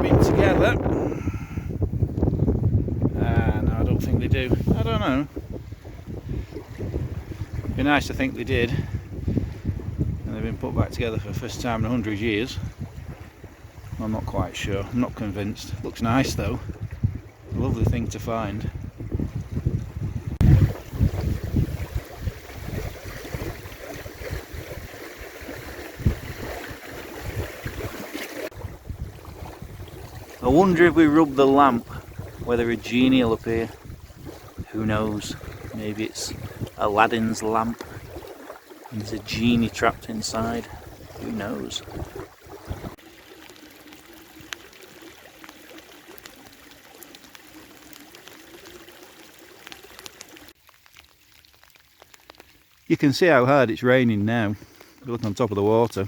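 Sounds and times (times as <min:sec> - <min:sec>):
hard rain on water and mud: 0:00.0 - 0:17.1, 0:20.4 - 0:56.0
wind buffeting microphone: 0:00.0 - 0:43.0.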